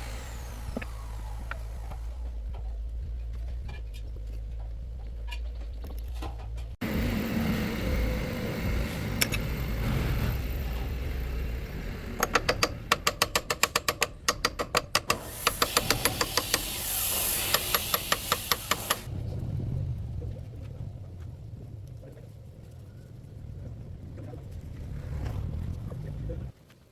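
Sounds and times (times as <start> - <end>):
steady noise: 6.8 - 24.2
rapid sharp knocks: 12.2 - 19.1.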